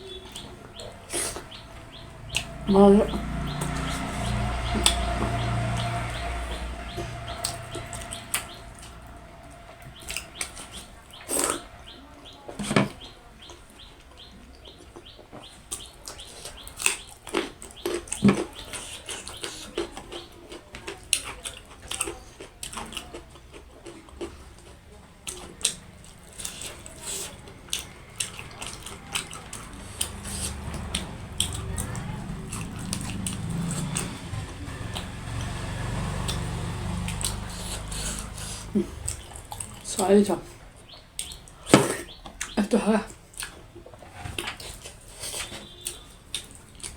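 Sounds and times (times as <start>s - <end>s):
chewing and lip smacking: 0.0s - 46.9s
low rumble: 0.6s - 12.2s.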